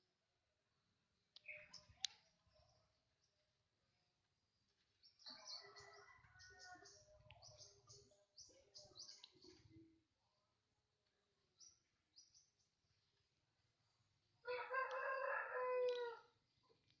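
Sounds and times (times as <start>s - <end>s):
songbird singing high chirps: 1.3s - 3.4s, 5.0s - 9.8s, 11.5s - 13.2s.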